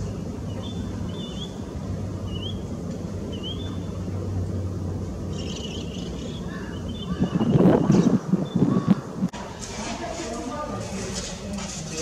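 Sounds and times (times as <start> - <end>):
rising whistled bird calls: 0.5 - 1.6, 2.3 - 2.6, 3.3 - 3.9.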